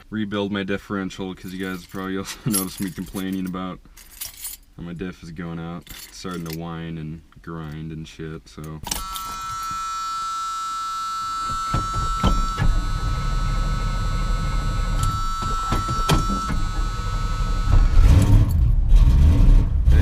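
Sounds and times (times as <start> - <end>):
electric warning buzzer: 8.9 - 18.5
engine cranking and starting: 15.0 - 20.0.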